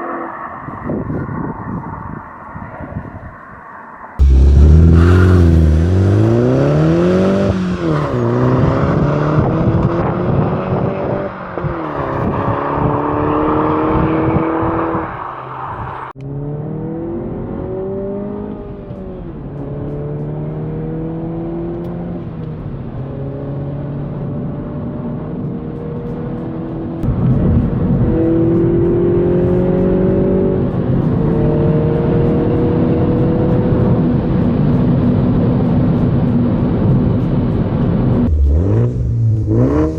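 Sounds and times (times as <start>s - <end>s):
car engine revving through gears: 4.2s - 22.4s, 27.8s - 34.1s, 38.0s - 39.9s.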